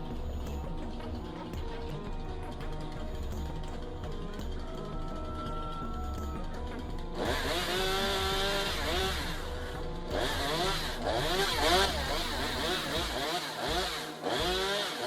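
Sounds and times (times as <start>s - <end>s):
chainsaw revving while cutting: 7.0s - 15.0s.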